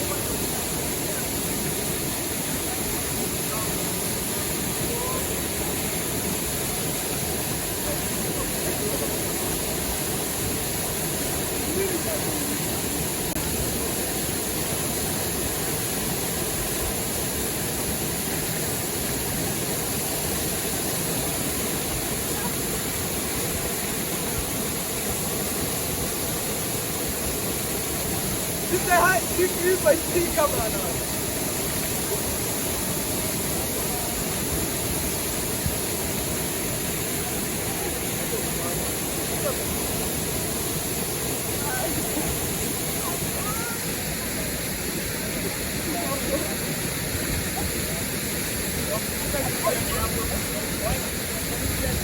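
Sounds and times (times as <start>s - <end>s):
rushing river or waterfall: 0.0s - 52.0s.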